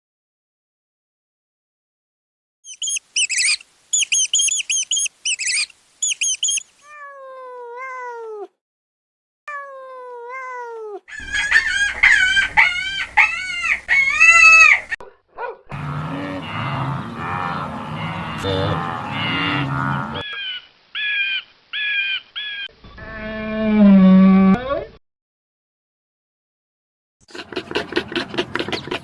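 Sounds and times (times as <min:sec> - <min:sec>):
cats meowing: 0:06.5 - 0:08.5.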